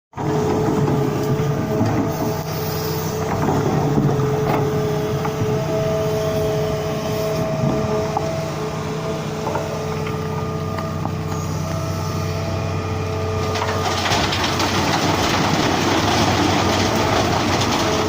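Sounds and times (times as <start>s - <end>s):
constant whine: 0.2s - 18.0s
higher whine: 1.2s - 14.0s.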